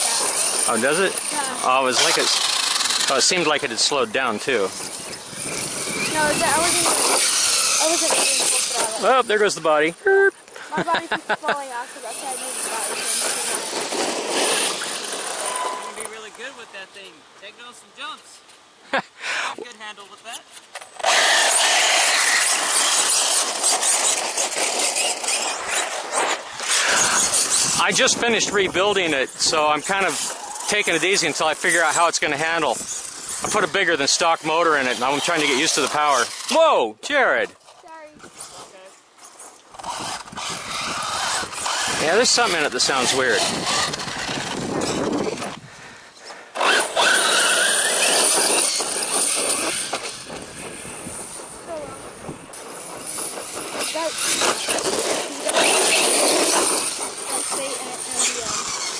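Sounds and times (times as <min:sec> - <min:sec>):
electric motor whine: 0:00.0 - 0:09.6, 0:21.0 - 0:31.9, 0:39.5 - 0:45.6, 0:46.6 - 0:58.9
steady hiss: 0:06.2 - 0:37.4.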